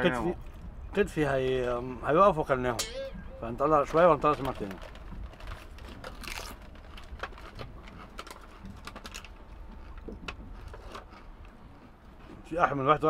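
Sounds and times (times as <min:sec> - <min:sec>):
low steady rumble: 0:00.0 - 0:13.0
potato chips crunching: 0:04.3 - 0:09.4.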